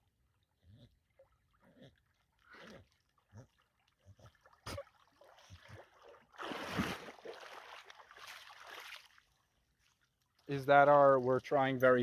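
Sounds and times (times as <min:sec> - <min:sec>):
dog splashing water: 0:03.2 - 0:09.3.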